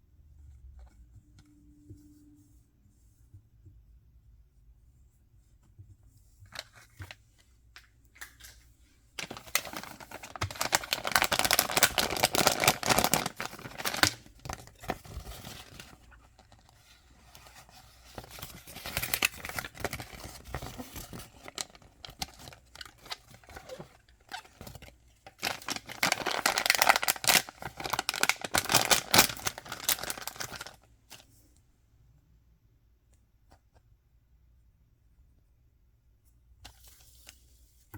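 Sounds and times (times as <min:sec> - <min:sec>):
packaging crackling: 0:09.2 - 0:16.0, 0:18.2 - 0:30.8
packaging rustling: 0:09.2 - 0:31.2.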